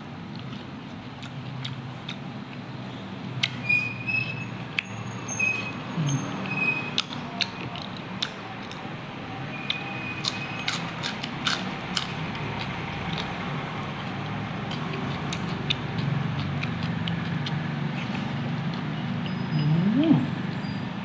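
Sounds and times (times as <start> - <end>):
crunchy chewing: 0.2 - 2.7, 6.4 - 9.0, 9.6 - 19.4.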